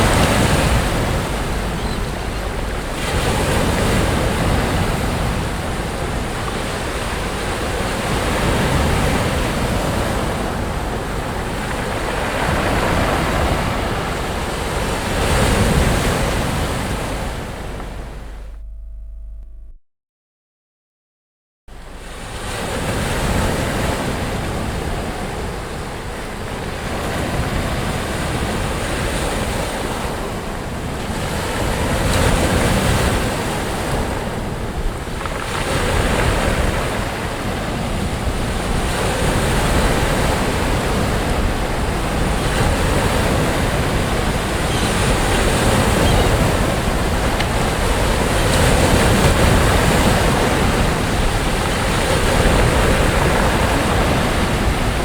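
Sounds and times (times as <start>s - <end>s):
sea waves breaking on beach: 0.0s - 18.5s, 21.8s - 55.0s
wind buffeting microphone: 0.0s - 19.6s, 21.7s - 55.0s.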